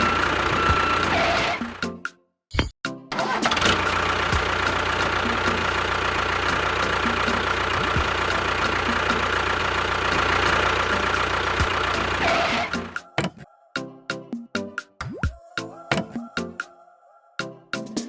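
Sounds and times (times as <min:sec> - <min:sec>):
small motor whining and ticking: 0:00.0 - 0:01.7.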